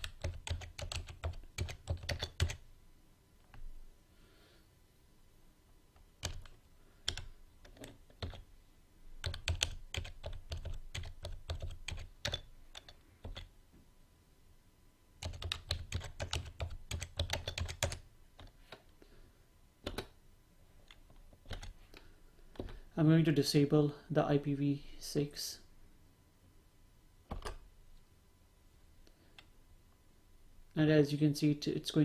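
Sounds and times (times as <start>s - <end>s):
keyboard typing: 0.0s - 2.6s, 6.0s - 8.5s, 9.2s - 13.5s, 15.2s - 18.6s, 19.8s - 20.2s, 20.9s - 21.8s.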